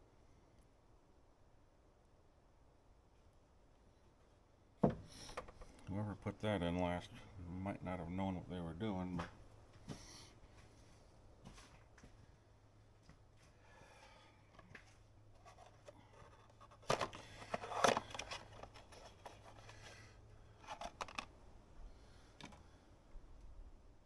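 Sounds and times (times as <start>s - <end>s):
faint steady hum: 0.0s - 24.0s
clicks and scrapes of parts: 14.5s - 21.4s, 22.3s - 22.7s.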